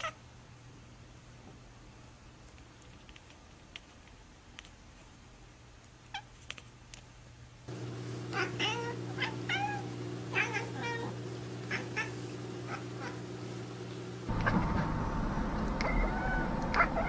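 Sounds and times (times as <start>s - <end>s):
steady low hum: 7.5s - 17.0s
cat meowing: 8.3s - 13.2s.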